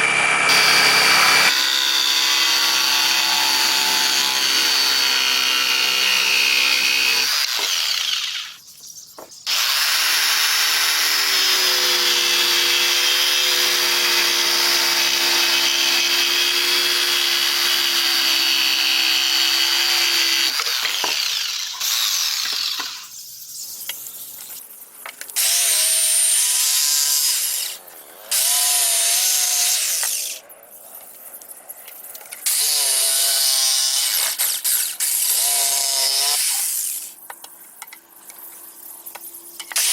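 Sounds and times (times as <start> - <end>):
power tool working wood: 0.0 - 8.6, 9.5 - 23.1, 25.4 - 30.4, 32.4 - 37.1.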